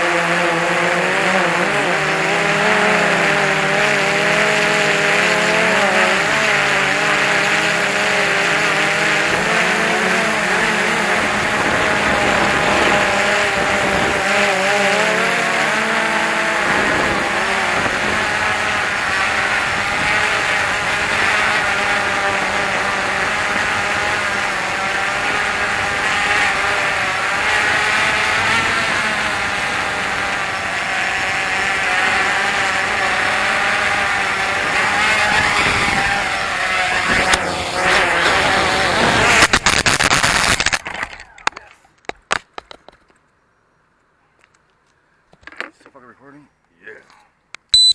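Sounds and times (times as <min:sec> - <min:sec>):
drone motors whining: 0:00.0 - 0:40.8
wind rumbling on microphone: 0:10.5 - 0:14.5, 0:16.6 - 0:24.6, 0:34.6 - 0:39.7.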